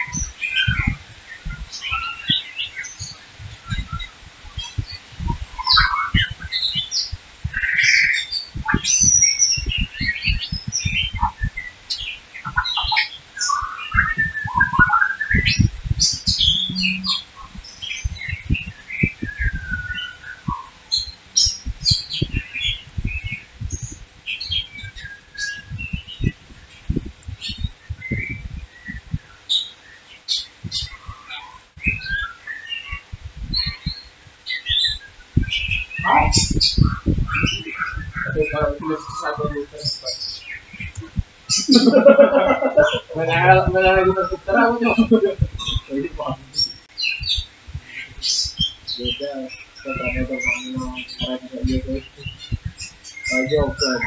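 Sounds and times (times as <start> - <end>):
small birds chirping: 0.0 - 54.0
short low thumps: 8.5 - 12.6, 14.0 - 20.6, 21.2 - 29.3, 33.1 - 33.8, 40.7 - 54.0.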